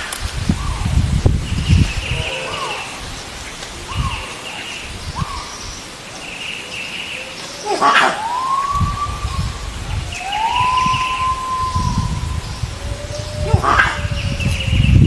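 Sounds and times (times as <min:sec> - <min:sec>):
long rising animal calls: 0:01.8 - 0:05.6, 0:07.1 - 0:15.0
sharp loud animal call: 0:02.0 - 0:03.1, 0:07.6 - 0:09.4, 0:13.1 - 0:14.5.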